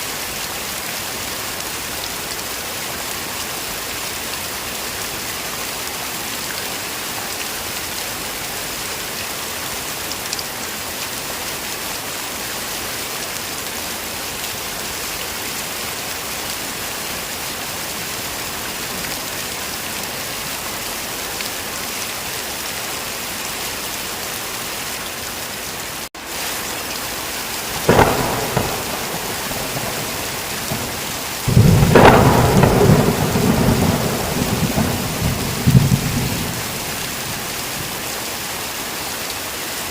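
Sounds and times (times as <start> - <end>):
heavy rain: 0.0 - 39.9
thunder crack: 27.8 - 37.0
rolling thunder rumble: 27.8 - 37.5.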